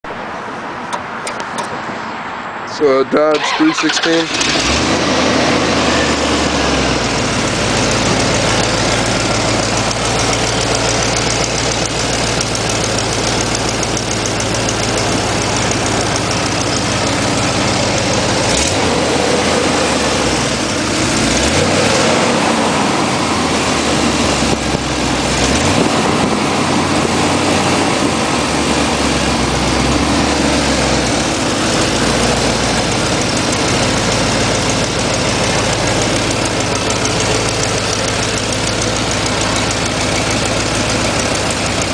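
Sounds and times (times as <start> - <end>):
car engine idling: 0.3 - 41.9
engine starting: 3.2 - 5.0.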